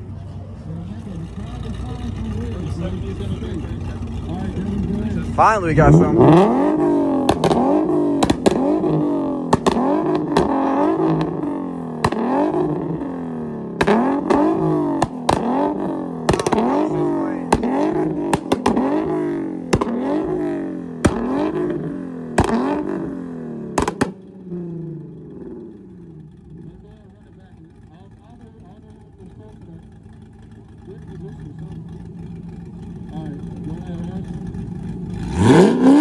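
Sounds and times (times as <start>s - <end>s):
car engine revving: 0.0s - 36.0s
exhaust pops and cracks: 6.3s - 24.5s.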